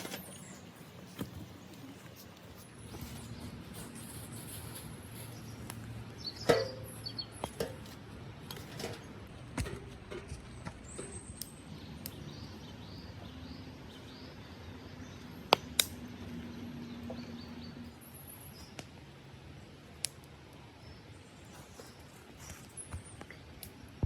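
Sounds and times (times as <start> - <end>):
wild birds chirping: 0.0 - 7.8, 10.4 - 19.8.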